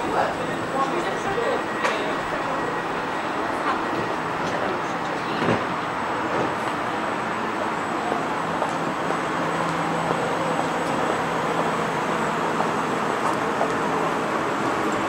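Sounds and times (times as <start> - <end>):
electric train humming: 0.0 - 15.0
steady background noise: 0.0 - 15.0.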